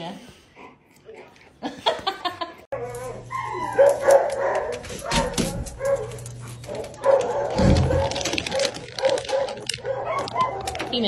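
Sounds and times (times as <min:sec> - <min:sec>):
dog barking and yipping: 0:02.7 - 0:11.0.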